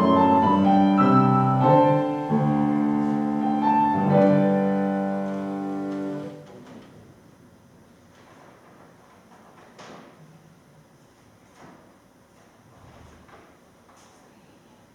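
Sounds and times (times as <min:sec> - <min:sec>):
piano playing slow chords: 0:00.0 - 0:06.4.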